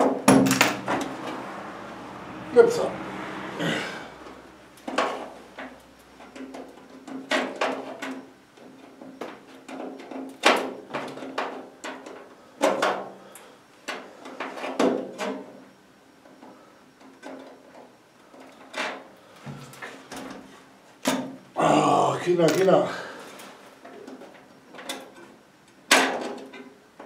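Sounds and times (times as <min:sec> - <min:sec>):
loud metal clank: 0:00.0 - 0:01.3.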